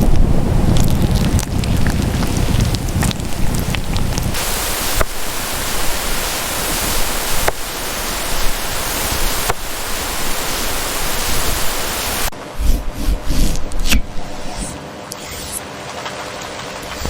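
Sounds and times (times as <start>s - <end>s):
heavy rain: 0.0s - 12.3s.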